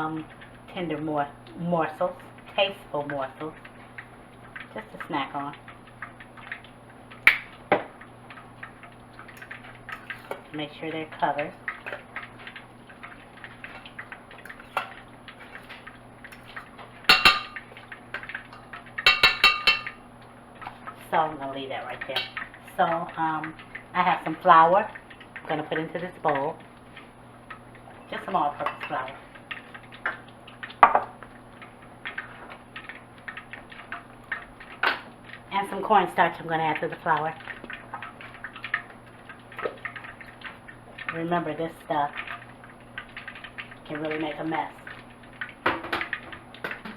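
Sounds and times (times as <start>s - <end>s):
kitchenware clicking and tapping: 17.1s - 20.0s, 28.6s - 29.0s, 30.8s - 31.1s.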